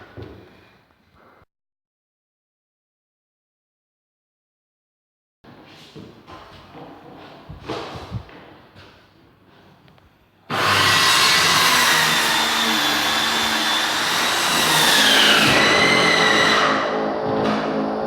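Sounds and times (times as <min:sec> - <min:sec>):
power tool whining: 0:10.5 - 0:18.0.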